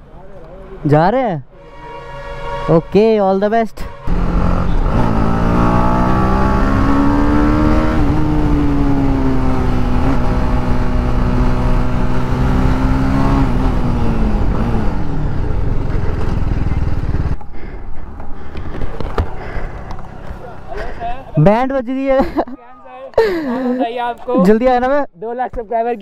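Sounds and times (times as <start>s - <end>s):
motorcycle engine pulling away: 4.1s - 17.4s.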